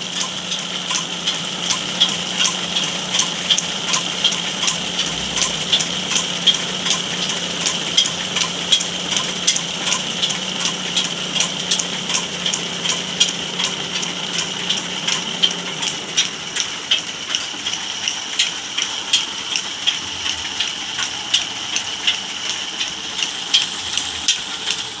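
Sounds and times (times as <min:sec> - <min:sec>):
low hum: 0:00.0 - 0:16.3
machine high whine: 0:00.0 - 0:25.0
regular ticking: 0:00.0 - 0:25.0.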